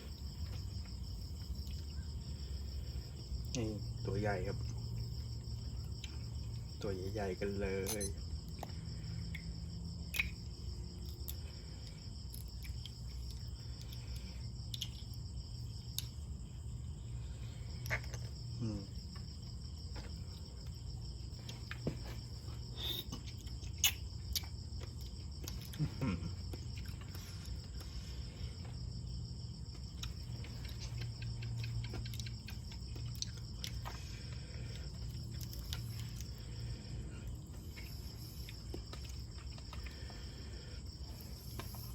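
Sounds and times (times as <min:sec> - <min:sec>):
high-pitched insect drone: 0:06.8 - 0:09.0
eating clicks and smacks: 0:07.6 - 0:16.3, 0:22.8 - 0:28.0, 0:29.5 - 0:36.6, 0:37.2 - 0:40.4.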